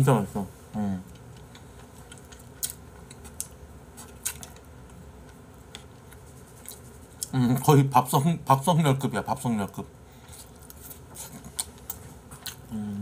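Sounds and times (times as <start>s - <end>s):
person chewing: 1.1s - 7.4s, 10.2s - 13.0s.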